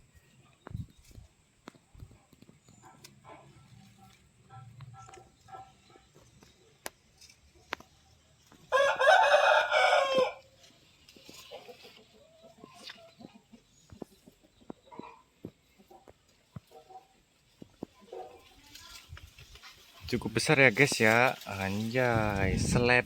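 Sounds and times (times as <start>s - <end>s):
rooster crowing: 8.7s - 10.5s.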